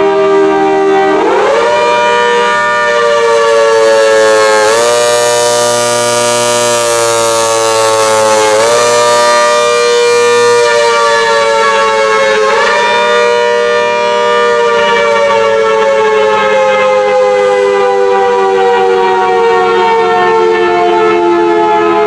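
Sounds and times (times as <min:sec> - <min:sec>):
warning siren two-note chord: 0:00.0 - 0:22.0.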